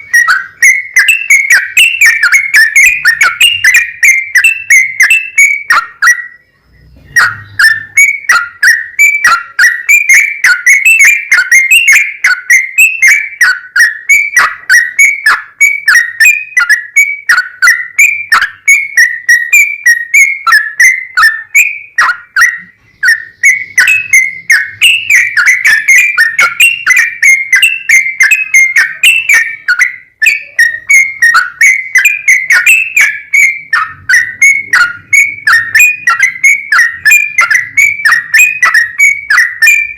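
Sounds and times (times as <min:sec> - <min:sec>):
bird singing bubbly whistles: 0:00.0 - 0:39.9.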